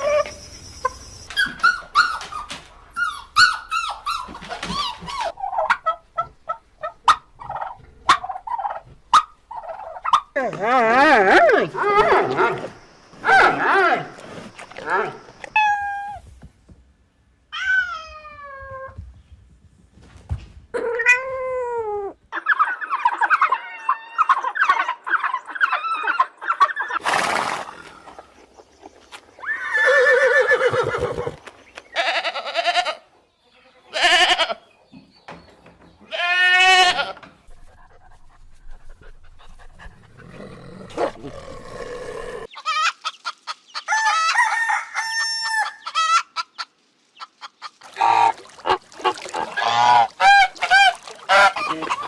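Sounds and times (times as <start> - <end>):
animal calls and cries: 0.0 - 16.3, 17.5 - 19.0, 20.7 - 27.0, 45.5 - 52.0.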